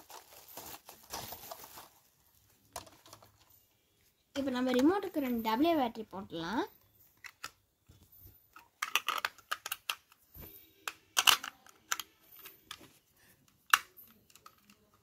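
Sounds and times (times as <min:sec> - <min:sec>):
batteries clicking into plastic compartment: 0:08.6 - 0:10.2, 0:10.9 - 0:12.8.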